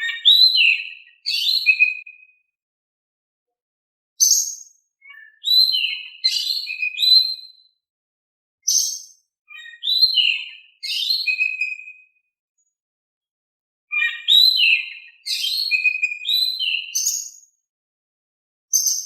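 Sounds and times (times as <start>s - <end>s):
bird singing whistles and chirps: 0.0s - 2.4s, 4.2s - 7.8s, 8.6s - 12.2s, 13.9s - 17.5s, 18.7s - 19.0s.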